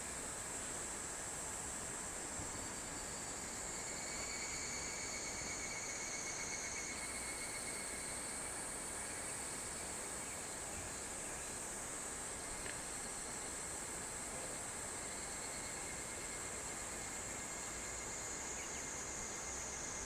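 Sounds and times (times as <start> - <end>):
insects calling: 15.0 - 20.0.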